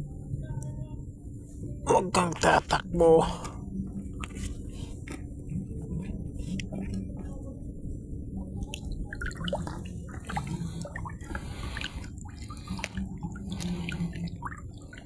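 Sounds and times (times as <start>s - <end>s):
water drips and splashes: 8.7s - 15.0s.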